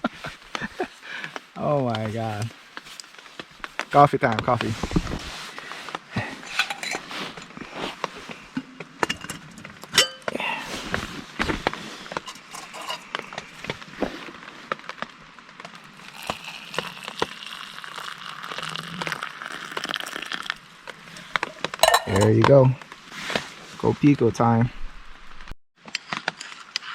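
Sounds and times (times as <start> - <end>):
metal cookware clinking: 6.5 - 7.0, 10.0 - 10.3, 12.2 - 13.1, 21.8 - 22.4.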